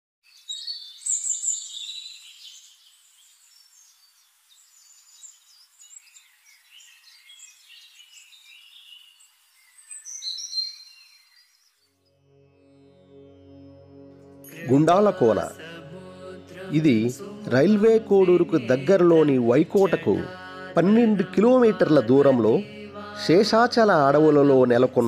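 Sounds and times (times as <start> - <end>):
birds chirping and calling: 0.3 - 11.8.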